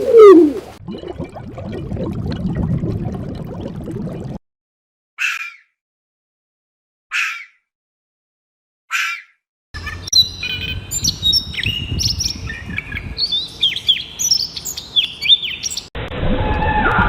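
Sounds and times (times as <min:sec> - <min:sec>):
birds chirping: 0:08.9 - 0:15.9.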